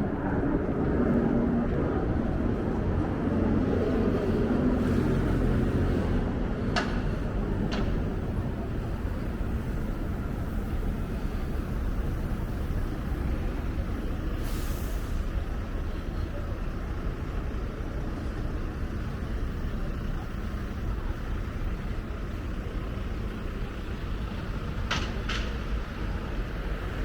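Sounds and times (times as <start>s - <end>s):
low traffic rumble: 0.0s - 27.0s
short hiss: 14.4s - 15.3s.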